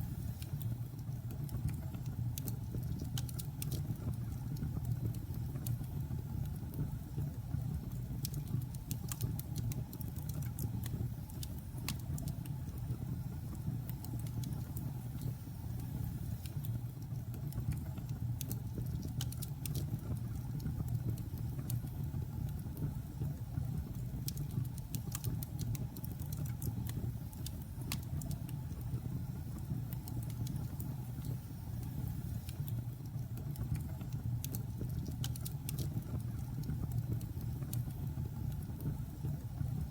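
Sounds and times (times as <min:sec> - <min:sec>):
burning logs crackling: 0:16.4 - 0:29.0, 0:29.6 - 0:39.9.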